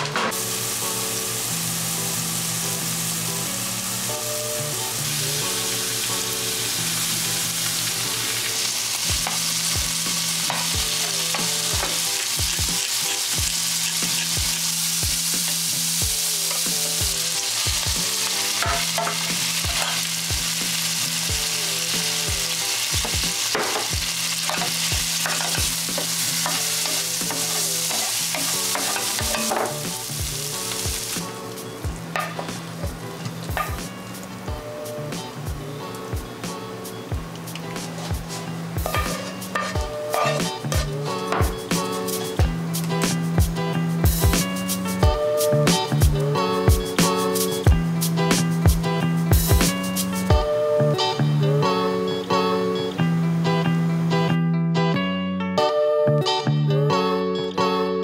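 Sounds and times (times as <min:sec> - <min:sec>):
stir-fry sizzling in a pan: 0:00.0 - 0:54.4
utensil scraping and knocking pan: 0:38.8 - 0:41.5.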